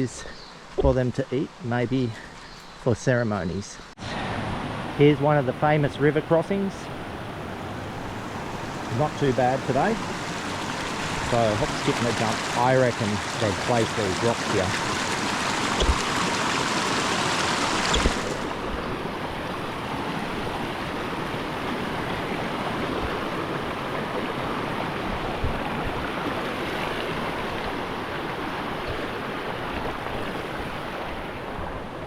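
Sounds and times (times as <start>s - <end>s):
river water rushing over rocks: 6.9s - 32.0s
dull knocks: 15.8s - 16.2s.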